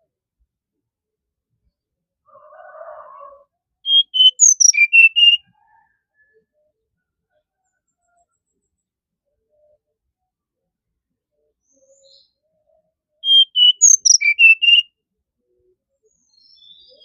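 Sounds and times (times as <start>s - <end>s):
bird whistled song: 3.9s - 5.5s, 11.7s - 12.4s, 13.2s - 14.9s, 16.2s - 17.0s.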